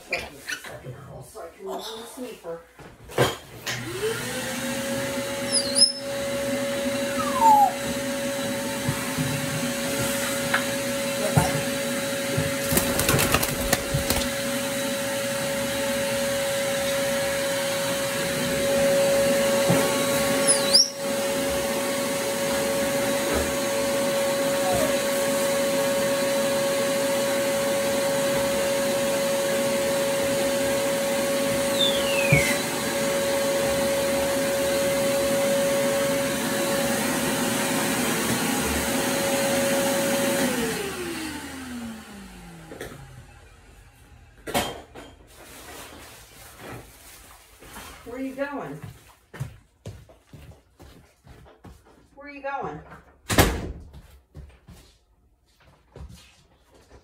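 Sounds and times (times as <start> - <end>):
vacuum cleaner whine: 3.6 - 44.6
debris rattling in vacuum: 12.4 - 14.5.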